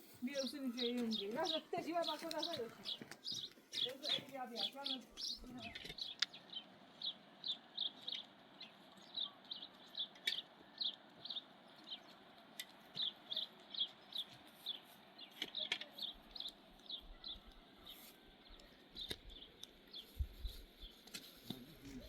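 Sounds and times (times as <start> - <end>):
bird chirping: 0.0 - 22.0.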